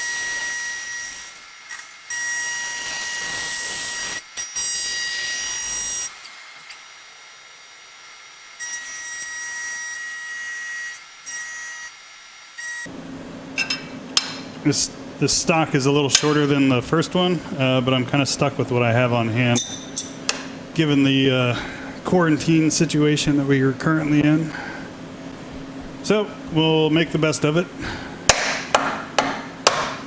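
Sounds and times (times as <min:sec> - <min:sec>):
milling machine cutting metal: 0:00.0 - 0:12.0.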